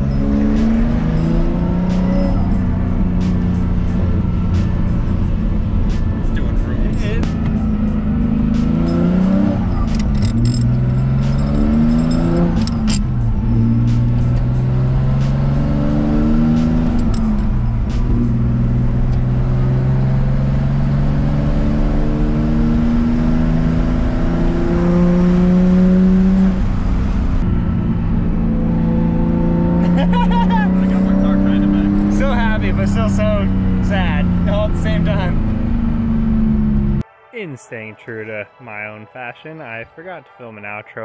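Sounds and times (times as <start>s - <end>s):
car engine accelerating through gears: 0.0s - 37.0s.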